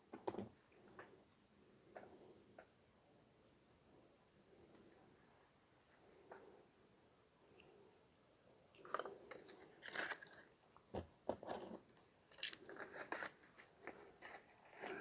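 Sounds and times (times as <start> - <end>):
small objects clicking and crinkling: 8.8 - 15.0.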